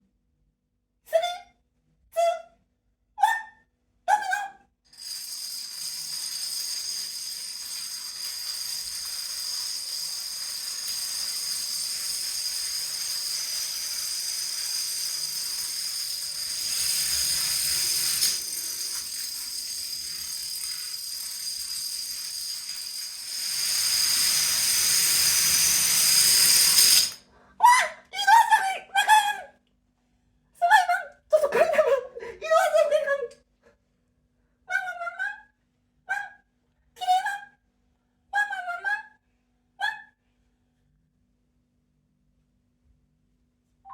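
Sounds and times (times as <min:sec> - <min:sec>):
plastic dominoes toppling: 0:05.0 - 0:27.2.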